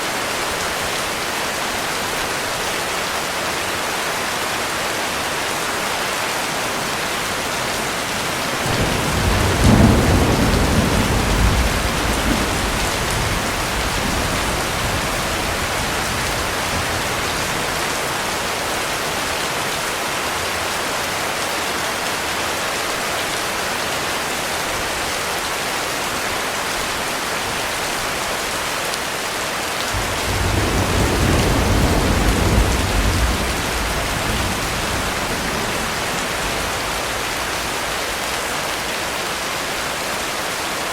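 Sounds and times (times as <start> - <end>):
heavy rain falling: 0.0 - 40.9
thunder rolling: 7.8 - 18.4, 29.9 - 38.5.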